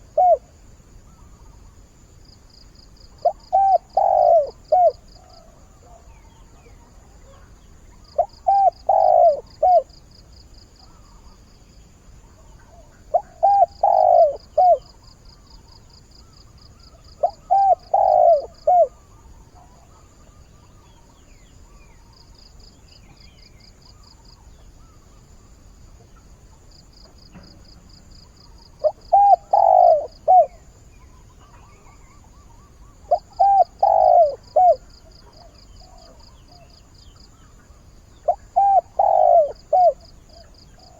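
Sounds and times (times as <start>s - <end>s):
dove cooing: 0.0s - 0.6s, 3.2s - 10.0s, 12.4s - 15.5s, 16.8s - 20.6s, 28.4s - 36.7s, 37.3s - 40.9s.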